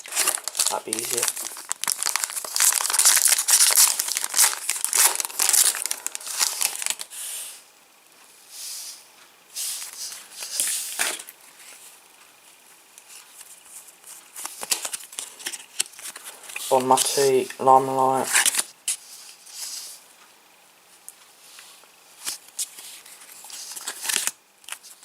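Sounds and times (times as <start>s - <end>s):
foil wrapper crinkling and tearing: 0.0s - 7.1s, 23.4s - 25.0s.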